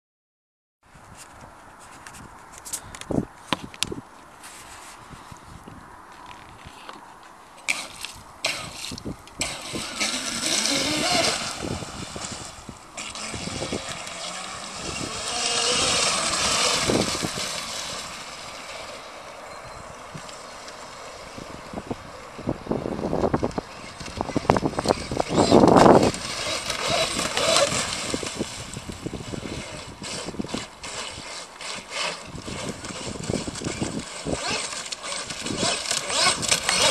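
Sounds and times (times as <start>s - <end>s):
wind buffeting microphone: 0.9s - 4.1s, 5.0s - 6.7s, 8.1s - 19.0s, 19.6s - 31.3s, 32.1s - 36.9s
high motor whine: 7.6s - 36.9s.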